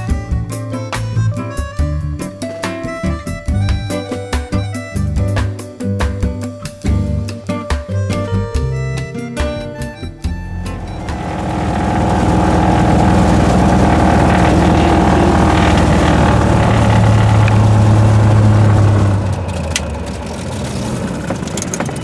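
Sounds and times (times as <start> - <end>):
propeller plane engine running: 10.6 - 22.0.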